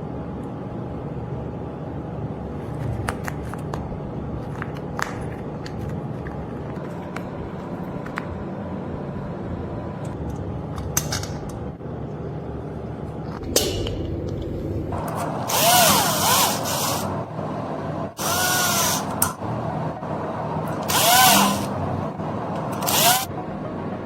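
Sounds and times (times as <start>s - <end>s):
power tool bursts: 15.4s - 17.1s, 18.2s - 19.1s, 20.8s - 21.7s, 22.8s - 23.3s.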